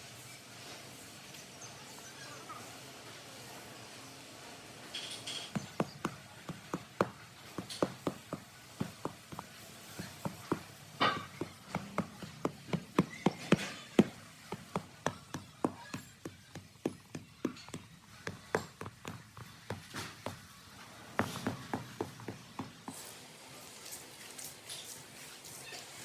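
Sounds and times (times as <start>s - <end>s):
sharp knocks: 5.4s - 20.4s.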